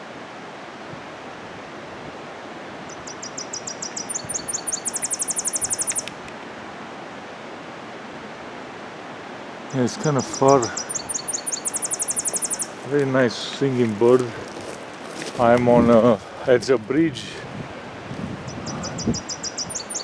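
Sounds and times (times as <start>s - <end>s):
bird chips and trill: 2.9s - 6.1s, 9.8s - 13.6s, 18.5s - 20.0s
rushing background noise: 8.4s - 20.0s.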